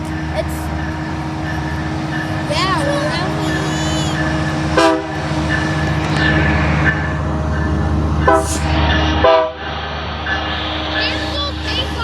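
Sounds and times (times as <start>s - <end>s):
diesel locomotive running: 0.0s - 12.0s
train horn blasts: 3.1s - 6.0s, 8.2s - 9.6s.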